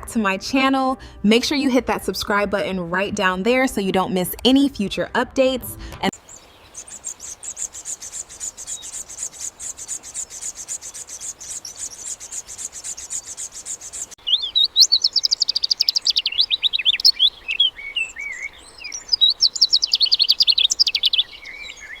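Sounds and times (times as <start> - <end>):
birds chirping and trilling: 6.1 - 22.0.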